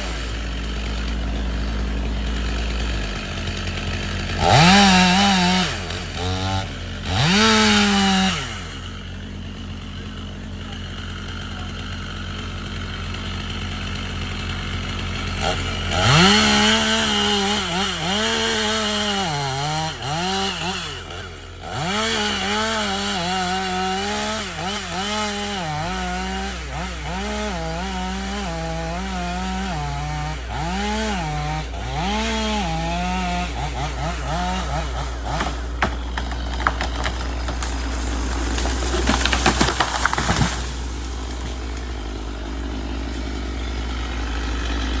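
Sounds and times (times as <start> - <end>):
chainsaw engine revving: 0.0 - 45.0
sharp cracks and knocks: 34.4 - 45.0.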